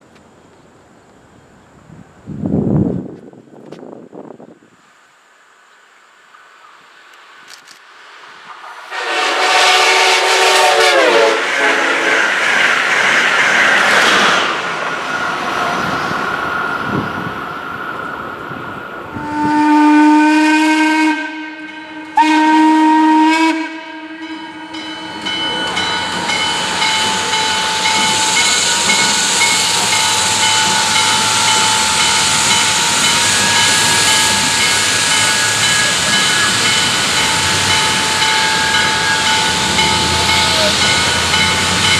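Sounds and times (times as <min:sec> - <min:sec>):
loud steam hissing: 0:08.0 - 0:41.9
steam locomotive chime whistle: 0:08.9 - 0:14.5, 0:19.2 - 0:41.9.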